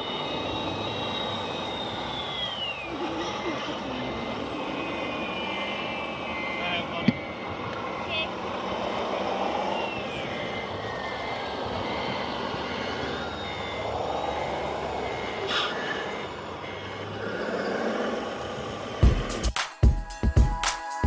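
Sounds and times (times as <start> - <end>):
reversing beeper: 0.0 - 19.2
electric motors whining: 0.0 - 19.5
mechanical hum: 0.0 - 19.6
music with sharp beat: 19.0 - 21.0.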